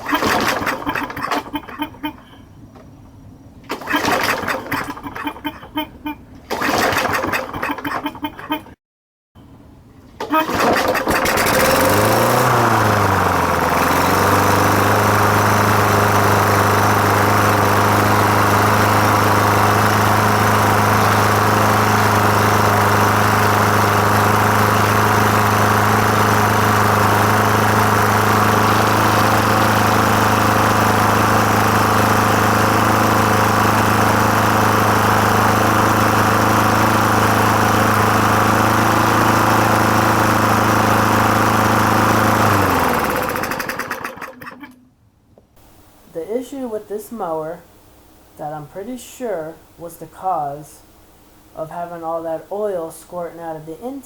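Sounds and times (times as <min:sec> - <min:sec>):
lawn mower engine running: 0:00.0 - 0:02.9, 0:03.6 - 0:08.4, 0:09.4 - 0:44.8.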